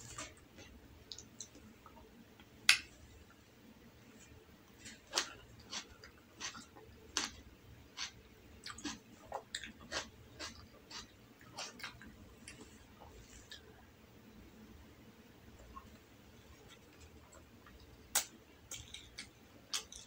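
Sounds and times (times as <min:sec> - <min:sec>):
chewing with mouth clicks: 0:04.8 - 0:07.4, 0:08.0 - 0:12.7.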